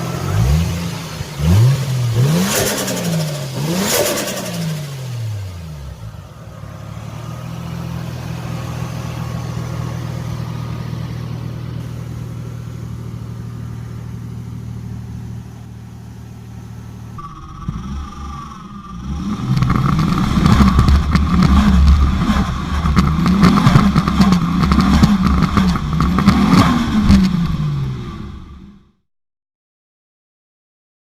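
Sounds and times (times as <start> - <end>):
car engine revving: 0.0 - 28.9
engine idling: 0.0 - 28.9
turbo flutter: 17.2 - 27.6.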